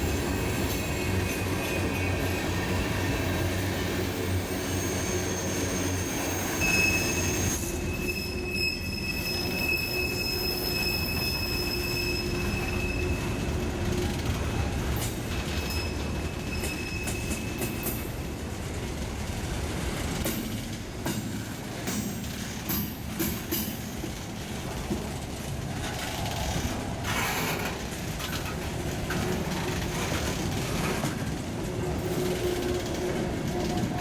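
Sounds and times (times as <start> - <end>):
wheels squealing: 0.0 - 13.6
train rumbling past: 0.0 - 34.0.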